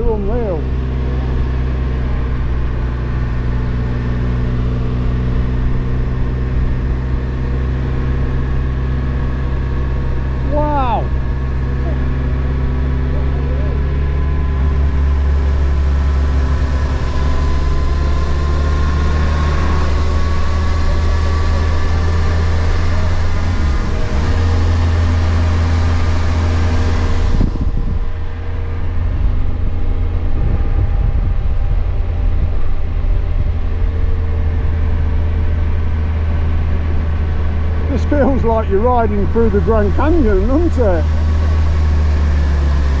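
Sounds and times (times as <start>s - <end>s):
motorcycle engine humming: 0.0s - 43.0s
wind rushing over microphone: 27.0s - 35.4s.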